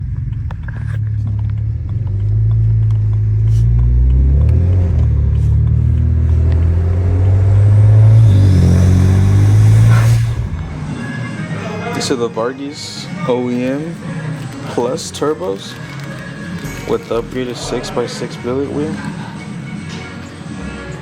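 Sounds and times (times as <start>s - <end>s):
car engine droning: 0.0s - 11.3s.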